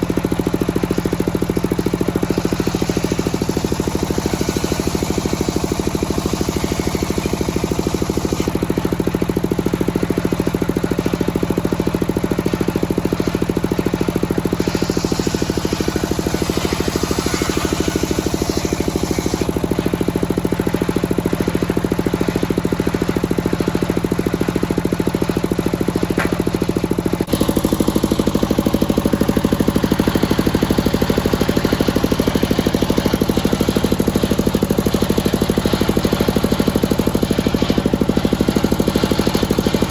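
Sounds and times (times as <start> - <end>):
saw blade cutting wood: 0.0 - 39.9
sawmill engine beating: 0.0 - 39.9.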